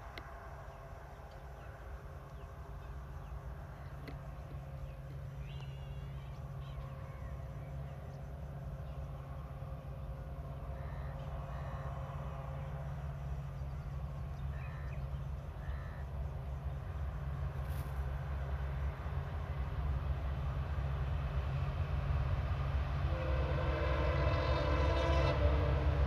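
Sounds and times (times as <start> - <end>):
train rumbling: 0.0 - 26.0
crows cawing: 10.8 - 11.9, 15.6 - 16.1
birds calling: 13.6 - 16.1.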